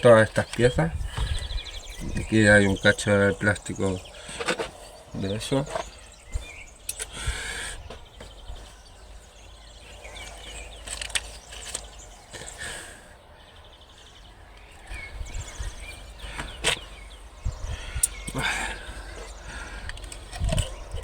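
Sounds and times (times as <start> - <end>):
birds chirping: 0.0 - 21.0
wind rumble on microphone: 0.3 - 4.2, 13.7 - 21.0.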